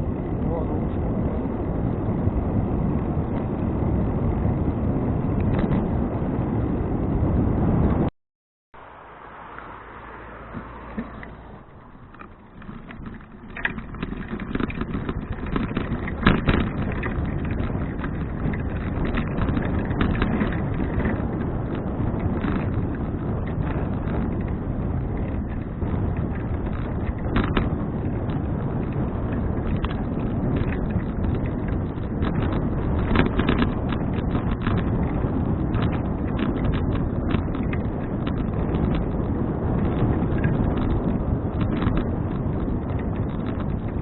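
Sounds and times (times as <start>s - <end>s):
wind rushing over microphone: 0.0s - 8.1s, 8.8s - 44.0s
bicycle rattling clicks and knocks: 10.5s - 44.0s.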